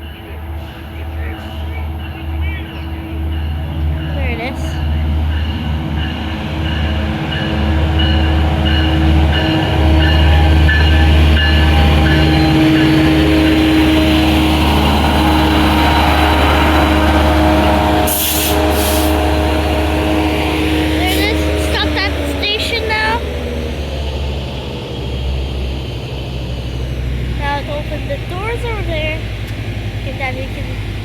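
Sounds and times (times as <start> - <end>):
train bell dinging: 0.0 - 24.3
diesel train engine drone: 0.0 - 31.0
air hisses: 18.1 - 19.2.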